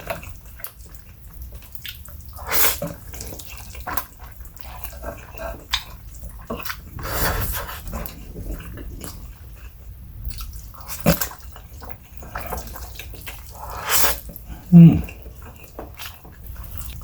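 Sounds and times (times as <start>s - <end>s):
wet chewing: 0.5s - 17.0s
slurping noodles: 6.9s - 9.2s, 12.2s - 15.2s.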